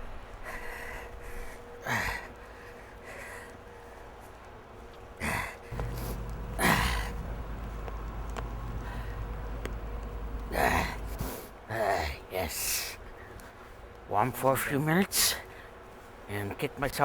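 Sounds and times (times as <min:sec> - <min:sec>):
man breathing heavily: 0:05.2 - 0:11.5
low steady rumble: 0:05.7 - 0:11.4.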